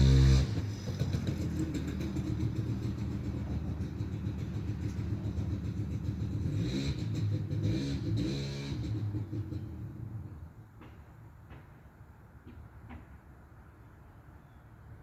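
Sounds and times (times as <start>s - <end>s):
small motorcycle engine revving: 0.0s - 10.0s.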